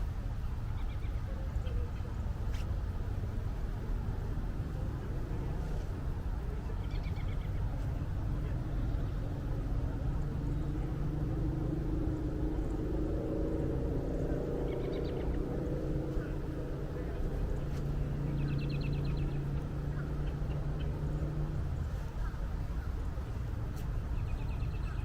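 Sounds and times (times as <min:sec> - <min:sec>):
low outdoor rumble: 0:00.0 - 0:25.0
small bird chirping: 0:14.7 - 0:15.5.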